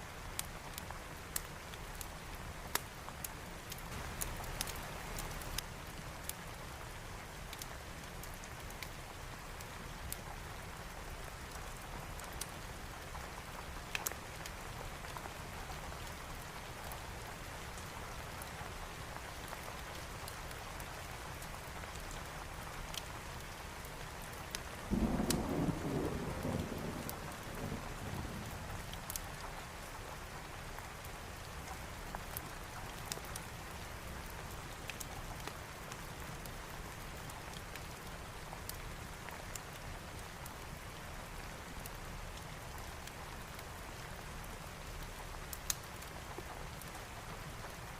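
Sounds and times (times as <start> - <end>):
steady rain: 0.0 - 47.9
thunder rumbling: 24.9 - 28.6.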